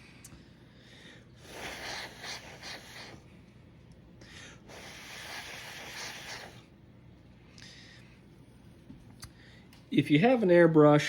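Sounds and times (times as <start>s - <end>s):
person blowing short puffs: 1.4s - 3.3s, 4.6s - 6.7s.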